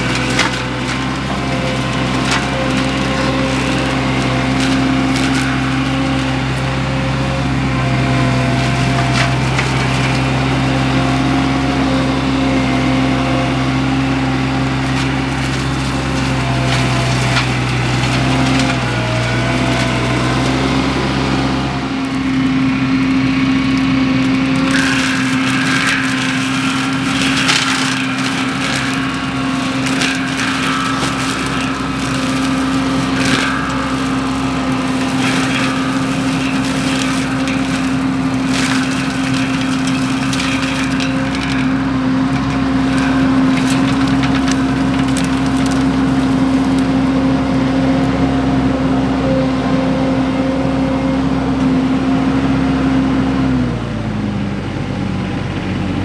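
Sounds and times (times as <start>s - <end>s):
wood cracking and snapping: 0.0s - 49.1s
mulcher engine running: 0.0s - 56.0s.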